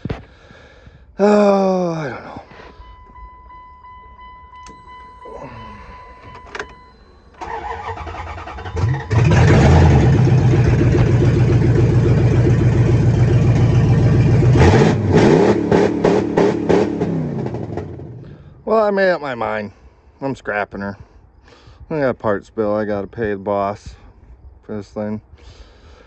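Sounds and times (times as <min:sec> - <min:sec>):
car engine starting and running: 0:00.0 - 0:18.6
steady high tone: 0:02.6 - 0:09.2
engine revving: 0:07.4 - 0:18.4.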